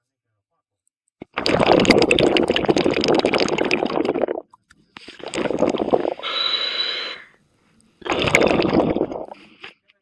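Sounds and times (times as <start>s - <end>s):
exhaled bubbles gurgling underwater: 1.3s - 4.4s, 5.2s - 6.4s, 8.0s - 9.4s
regulator inhale hiss: 5.1s - 7.4s.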